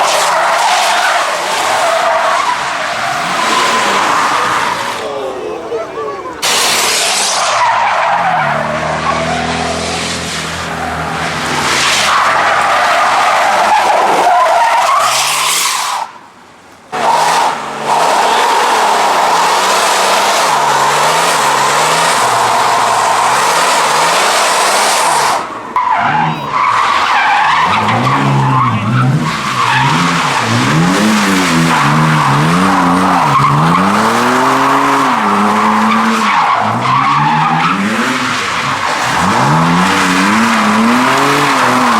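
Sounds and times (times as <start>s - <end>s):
car engine revving: 0.0s - 14.2s, 16.9s - 41.9s
tyres squealing: 17.0s - 30.8s.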